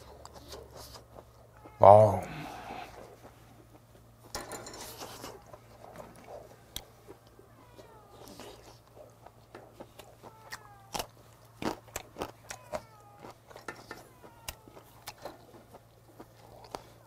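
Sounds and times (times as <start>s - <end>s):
chewing with mouth smacks: 5.0s - 17.0s.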